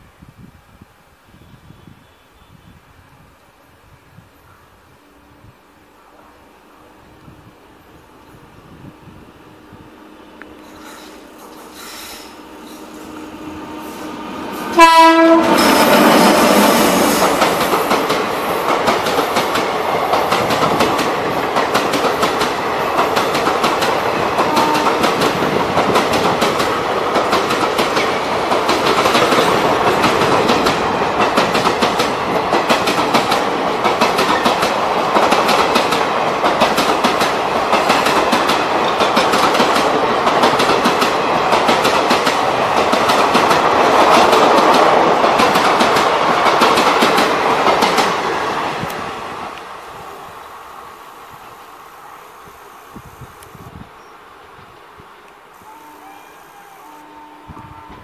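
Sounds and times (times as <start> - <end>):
train horn blast: 9.9 - 17.6, 24.4 - 25.2, 55.6 - 58.0
train wheels clattering over rail joints: 17.2 - 48.2.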